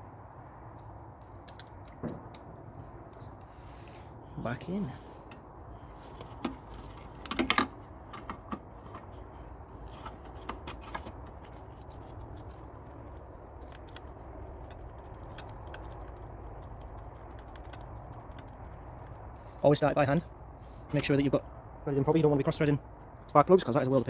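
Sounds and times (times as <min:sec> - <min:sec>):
low steady hum: 0:00.0 - 0:24.0
light metal clicks and taps: 0:00.8 - 0:04.0, 0:09.8 - 0:21.2.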